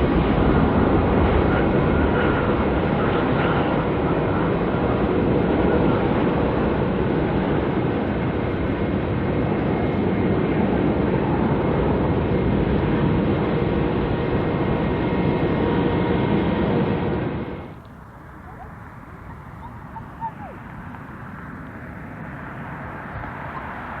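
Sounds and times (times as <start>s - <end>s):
jet engine rumble: 0.0s - 24.0s
faint whining tones: 11.2s - 24.0s.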